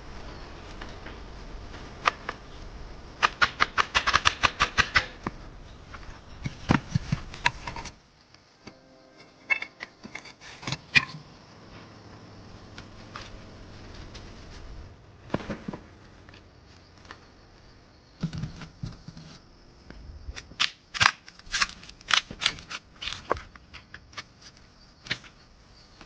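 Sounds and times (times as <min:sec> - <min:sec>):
background hiss: 0:00.0 - 0:26.0
sharp clicks: 0:03.2 - 0:05.4.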